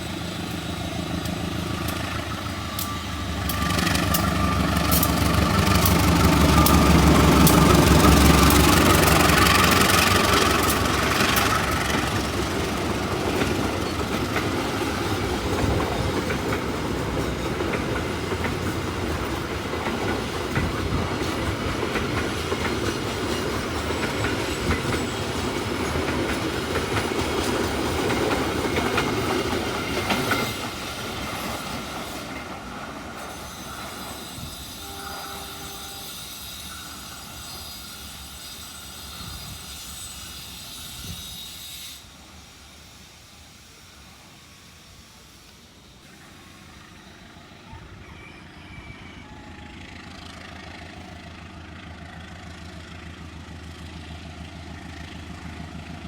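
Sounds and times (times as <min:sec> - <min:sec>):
train wheels clattering: 0:00.0 - 0:43.1.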